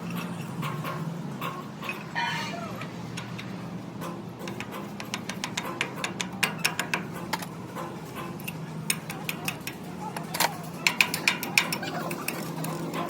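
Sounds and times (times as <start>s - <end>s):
sharp metallic taps and clinks: 3.1s - 13.0s.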